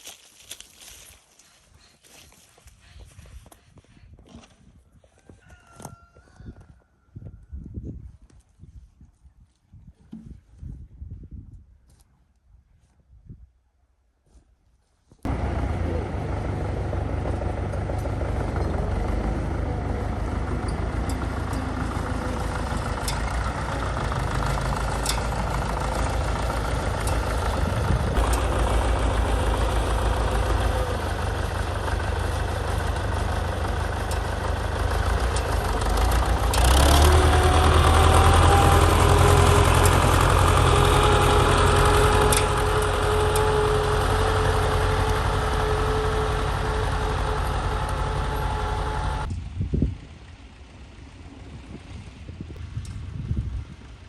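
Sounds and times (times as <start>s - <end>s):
old tractor engine running: 15.3s - 53.1s.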